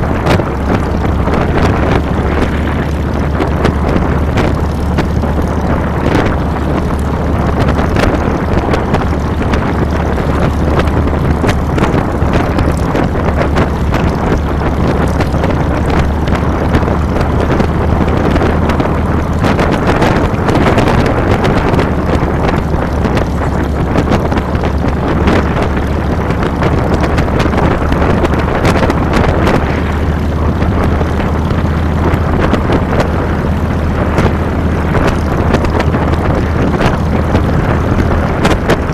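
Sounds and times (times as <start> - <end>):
motorcycle engine running: 0.0 - 38.9
wind rushing on microphone: 0.0 - 38.9.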